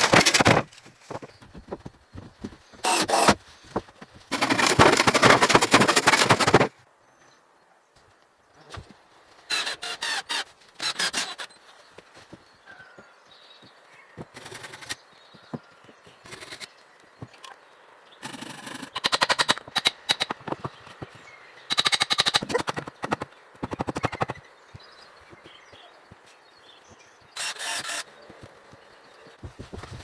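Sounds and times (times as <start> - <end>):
rapid clicking or rasping: 4.3 - 6.7, 21.7 - 24.4.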